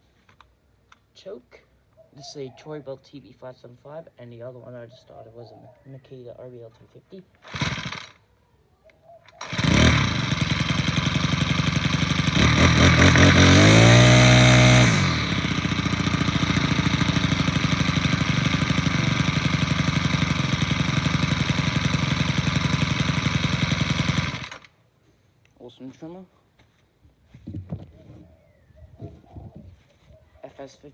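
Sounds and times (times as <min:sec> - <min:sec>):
string trimmer engine: 0:07.4 - 0:08.2, 0:09.3 - 0:24.8.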